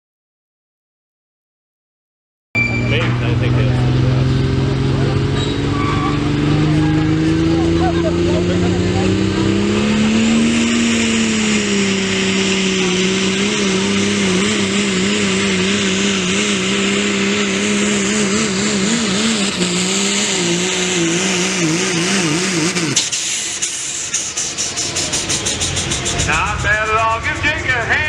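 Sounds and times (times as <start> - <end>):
diesel truck engine at full throttle: 2.6 - 28.0
loud hiss: 22.8 - 26.8.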